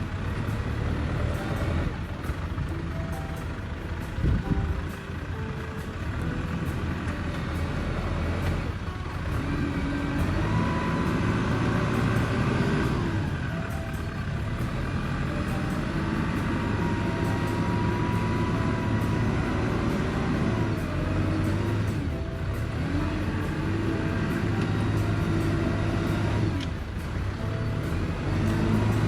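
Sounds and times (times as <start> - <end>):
high whine: 0.0 - 29.0
tractor diesel engine running: 0.0 - 29.0.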